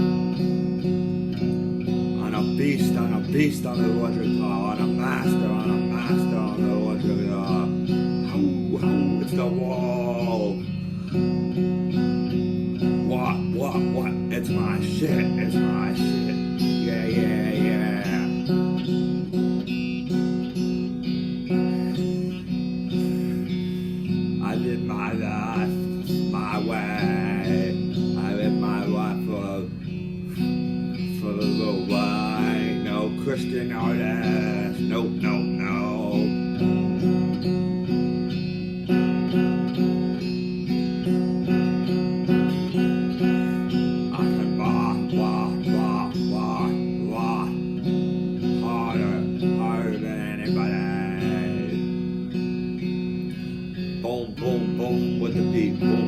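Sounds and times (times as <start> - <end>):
strummed guitar: 0.0 - 56.0.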